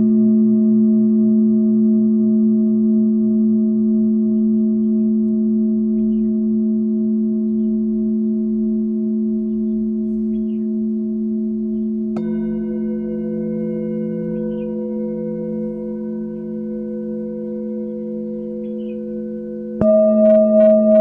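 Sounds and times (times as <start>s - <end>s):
singing bowl ringing: 2.5s - 21.0s
singing bowl struck: 2.6s - 21.0s
small birds chirping: 4.1s - 19.8s.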